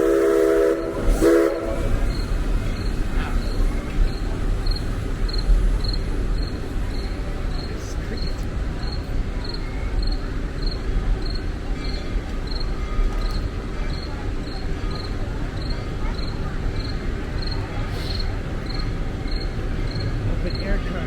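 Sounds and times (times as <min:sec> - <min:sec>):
cricket chirping: 0:02.1 - 0:11.4.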